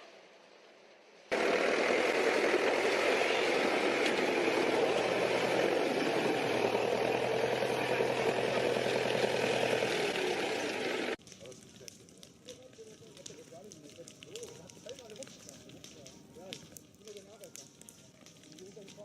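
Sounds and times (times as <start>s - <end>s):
heavy machine engine rattling: 1.3s - 11.2s.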